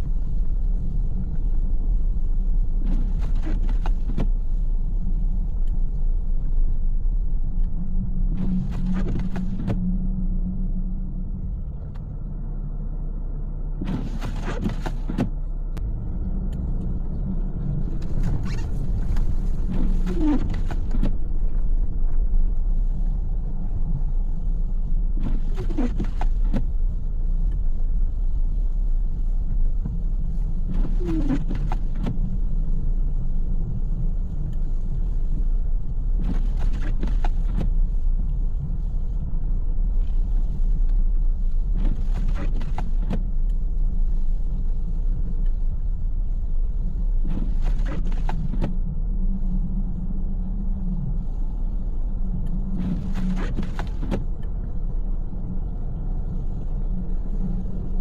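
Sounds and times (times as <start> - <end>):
engine and tyres rumbling: 0.0 - 58.0
windshield wipers: 2.8 - 4.6, 8.4 - 9.8, 13.8 - 15.4, 17.9 - 21.3, 25.2 - 27.4, 29.8 - 32.6, 33.9 - 39.2, 40.0 - 45.6, 46.9 - 48.8, 52.7 - 54.6.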